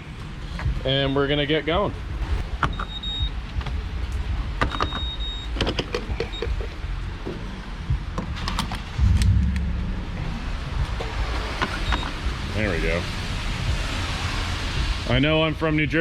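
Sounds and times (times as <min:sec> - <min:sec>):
steady low rumble: 0:00.0 - 0:16.0
clicks and knocks: 0:04.6 - 0:06.8.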